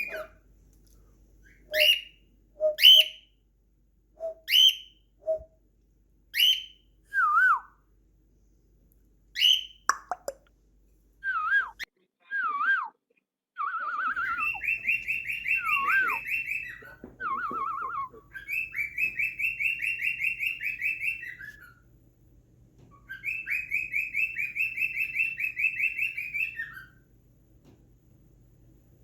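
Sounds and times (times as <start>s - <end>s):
bird warbling whistles: 1.6s - 3.2s, 4.2s - 5.5s, 14.1s - 21.7s.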